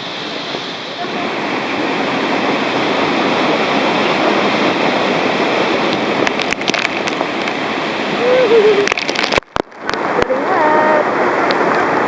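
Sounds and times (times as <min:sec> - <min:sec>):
waterfall rushing: 0:00.0 - 0:12.0
short crackles: 0:08.8 - 0:10.4.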